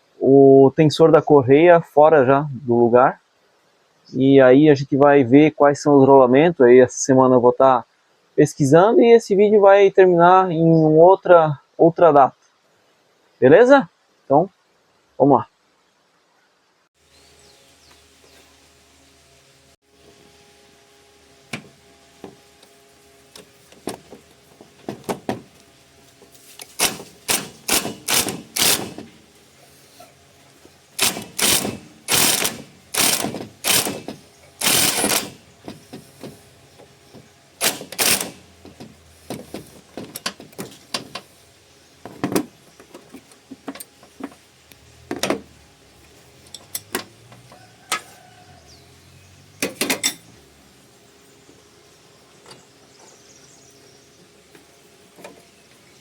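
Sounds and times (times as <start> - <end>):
hand tools clicking on metal: 26.6 - 29.2, 31.0 - 36.3, 37.1 - 41.2.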